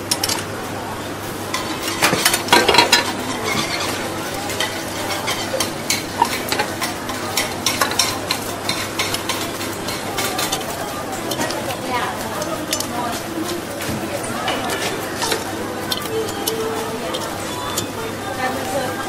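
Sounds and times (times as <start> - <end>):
metal spatula scraping a pan: 1.5 - 10.6.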